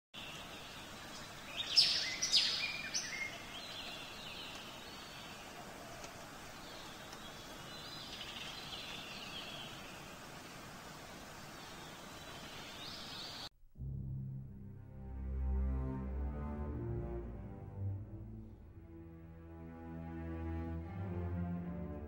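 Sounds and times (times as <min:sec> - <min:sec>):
bird calls and chirping: 0:00.2 - 0:13.5
steady background hiss: 0:00.2 - 0:13.5.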